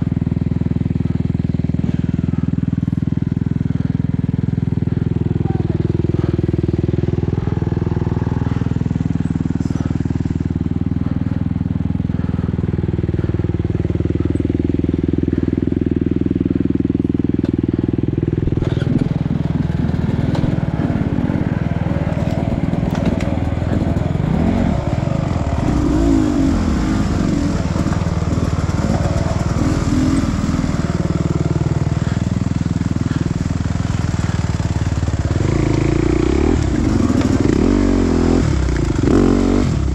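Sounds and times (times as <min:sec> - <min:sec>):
dirt bike engine revving: 0:00.0 - 0:39.9
knocks and clatter: 0:22.1 - 0:24.1.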